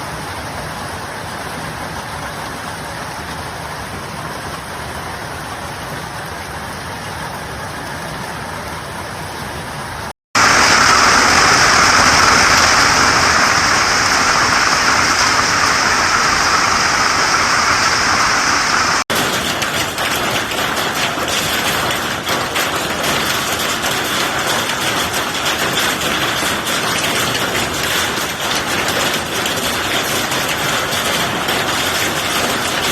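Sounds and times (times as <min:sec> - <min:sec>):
hail striking: 0:10.4 - 0:32.9
heavy rain rushing: 0:10.4 - 0:32.9.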